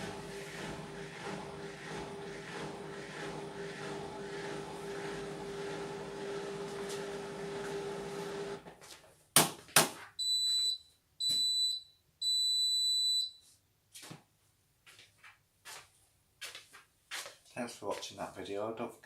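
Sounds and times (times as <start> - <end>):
washing machine hum: 0.0 - 8.7
high beeps: 10.2 - 13.4.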